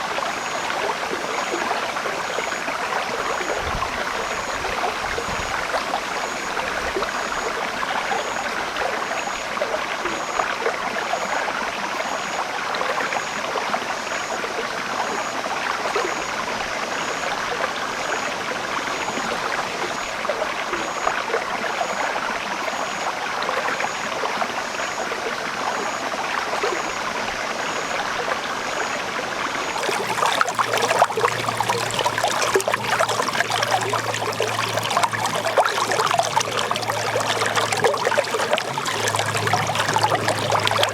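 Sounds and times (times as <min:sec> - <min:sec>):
water running through a channel: 0:00.0 - 0:40.9
water trickling and splashing: 0:00.0 - 0:40.9
faint low hum: 0:29.8 - 0:40.9.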